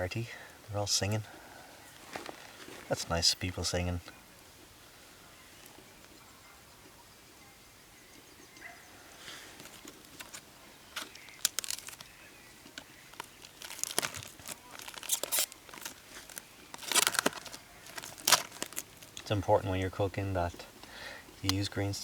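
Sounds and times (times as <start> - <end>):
rustling and crinkling: 1.3 - 4.7, 8.6 - 19.7.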